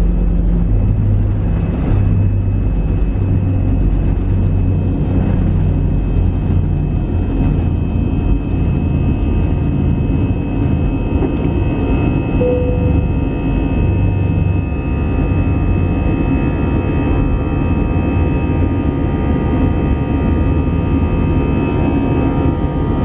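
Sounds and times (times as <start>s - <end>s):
jet engines rumbling with whine: 0.0s - 23.0s
short tone: 12.2s - 14.6s
high tones: 12.4s - 13.8s.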